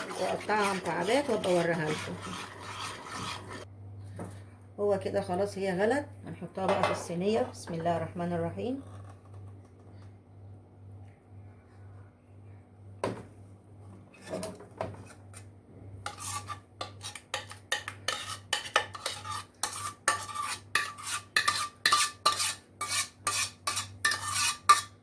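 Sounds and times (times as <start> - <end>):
metal spoon scraping a pot: 0.0 - 3.7, 16.0 - 25.0.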